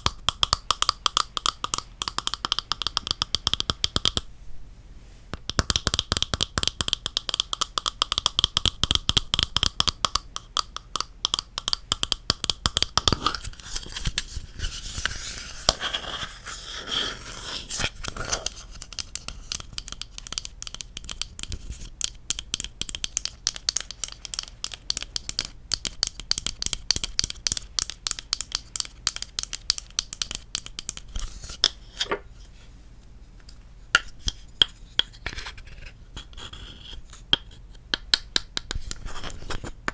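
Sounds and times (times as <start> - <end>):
tapping and scratching on wood: 0.0 - 4.2, 5.4 - 16.4, 17.7 - 32.2.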